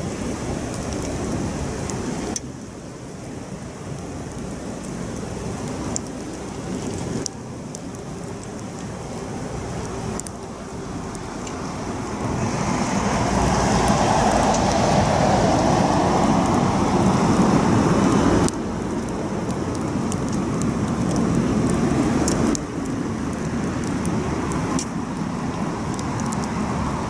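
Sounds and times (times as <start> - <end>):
campfire burning: 0.0 - 27.0
wood crackling and popping: 0.0 - 27.0.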